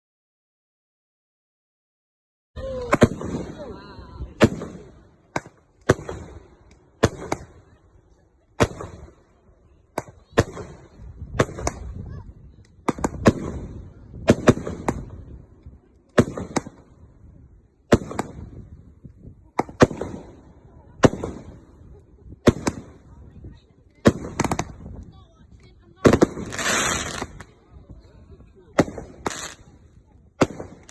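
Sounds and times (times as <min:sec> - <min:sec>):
fireworks exploding: 0:02.6 - 0:27.9, 0:28.6 - 0:30.9
fireworks crackling hiss: 0:26.1 - 0:27.6, 0:28.8 - 0:30.9.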